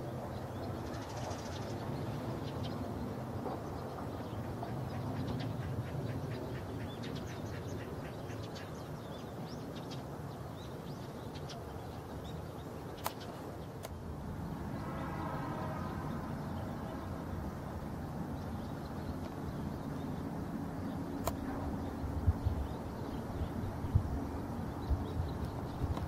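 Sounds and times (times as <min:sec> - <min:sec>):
small birds chirping: 0:00.0 - 0:15.0
sharp clicks: 0:21.2 - 0:21.4.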